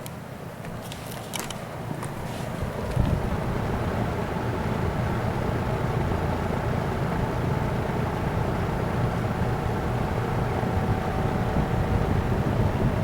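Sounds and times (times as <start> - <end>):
box fan whooshing and humming: 0.0 - 13.0.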